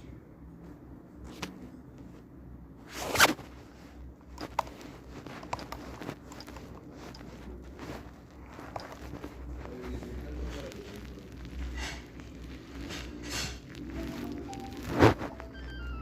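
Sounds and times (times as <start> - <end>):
light clicks and crackles: 4.3 - 15.8.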